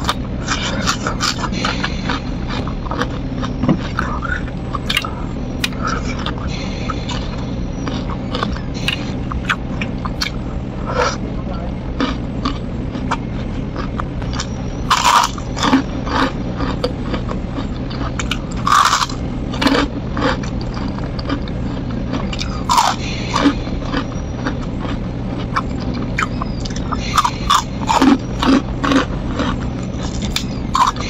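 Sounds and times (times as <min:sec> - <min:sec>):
crunching crispy cracker: 0:12.0 - 0:31.0.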